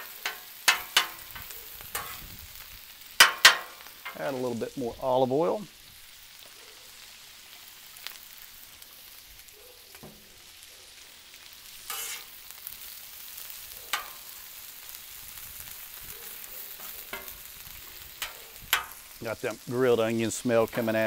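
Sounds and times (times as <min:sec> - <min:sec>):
metal spatula scraping griddle: 0:00.0 - 0:02.3, 0:11.6 - 0:12.9, 0:13.9 - 0:14.3, 0:16.7 - 0:17.4
food sizzling on a griddle: 0:00.0 - 0:21.0.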